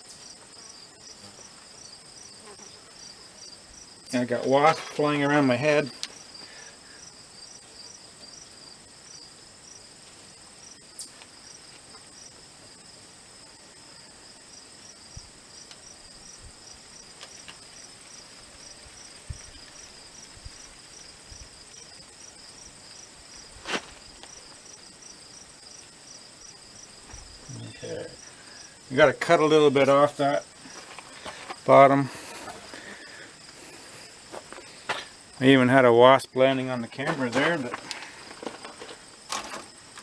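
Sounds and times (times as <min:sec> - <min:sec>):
crickets chirping: 0:00.0 - 0:40.0
high insect trill: 0:00.0 - 0:40.0.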